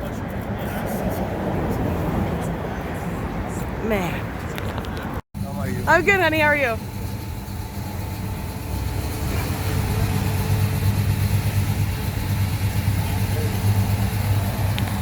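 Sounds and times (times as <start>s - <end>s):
car engine idling: 5.4s - 15.0s.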